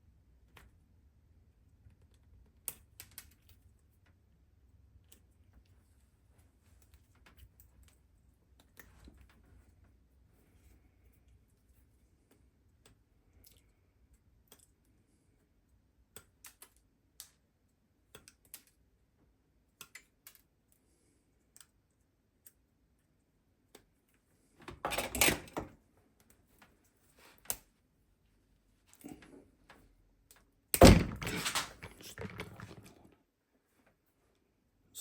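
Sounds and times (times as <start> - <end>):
clicks and taps of small parts: 16.1 - 17.4, 18.1 - 18.8, 19.8 - 20.8.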